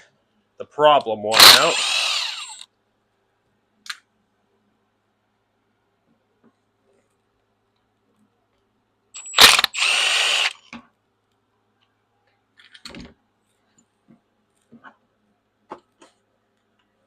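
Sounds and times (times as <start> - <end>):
handheld power tool running: 1.3 - 2.6, 9.2 - 10.7.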